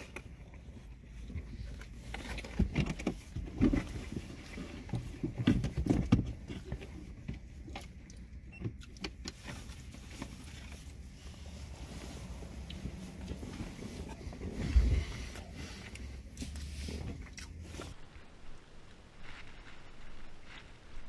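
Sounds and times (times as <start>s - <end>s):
steady low rumble: 9.6s - 21.0s
chewing with mouth clicks: 15.4s - 17.6s.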